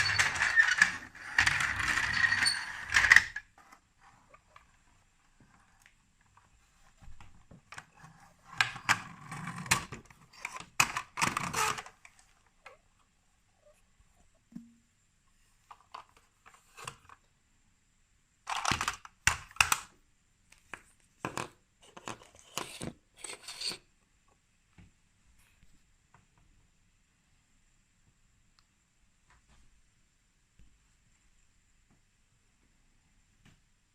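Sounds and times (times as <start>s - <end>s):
plastic toy pieces clicking: 0.0s - 3.4s, 18.5s - 19.9s.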